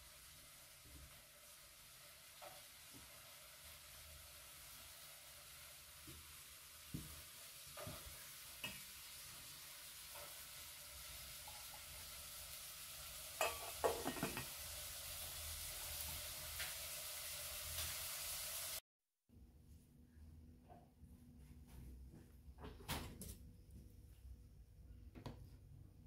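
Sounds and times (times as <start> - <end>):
potatoes sizzling in oil: 0.0 - 18.8
metal lid clinking on pan: 13.4 - 14.5.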